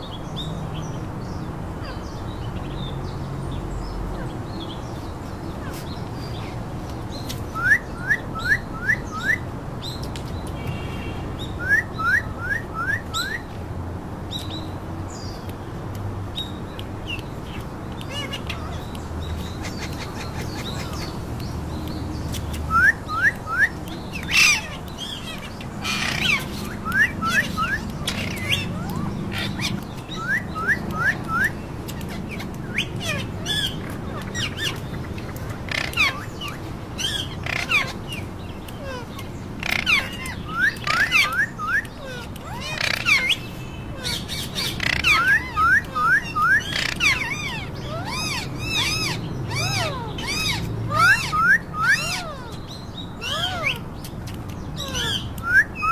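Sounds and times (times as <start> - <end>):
parakeets whistling: 7.5 - 9.5, 11.6 - 13.5, 22.7 - 38.2, 38.8 - 53.9, 54.8 - 55.9
parakeet harsh squawks: 24.3 - 29.8, 35.7 - 36.3, 37.0 - 38.0, 39.6 - 41.4, 42.1 - 43.4, 44.0 - 52.4.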